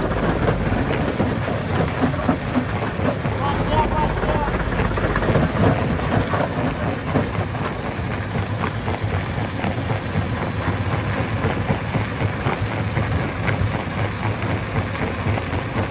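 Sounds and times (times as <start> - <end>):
heavy machinery engine running: 0.0 - 11.4.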